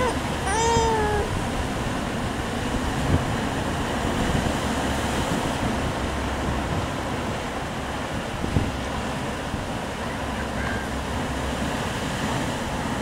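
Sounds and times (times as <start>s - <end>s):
wind buffeting microphone: 0.0s - 9.9s
rushing water: 0.0s - 13.0s.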